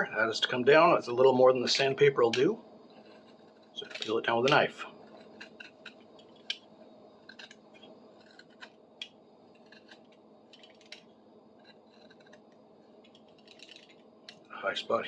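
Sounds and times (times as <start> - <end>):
knife scraping wood: 2.9 - 4.2, 4.9 - 6.6, 7.2 - 8.8, 9.5 - 14.5.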